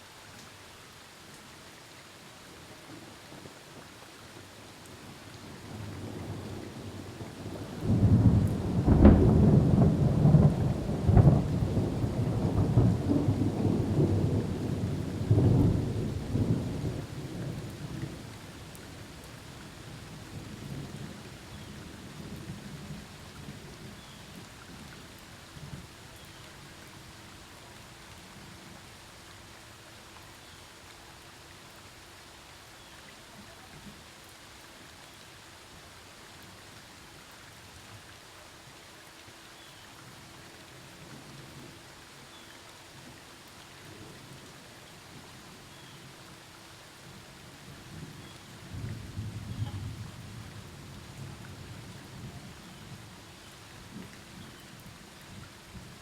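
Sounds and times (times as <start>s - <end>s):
steady rain: 0.0s - 56.0s
thunder rolling: 7.9s - 14.5s.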